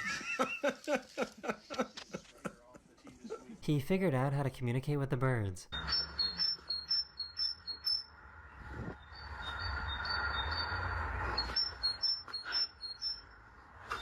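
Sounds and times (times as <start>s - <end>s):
short high bird chirps: 5.7s - 8.1s, 11.4s - 13.3s.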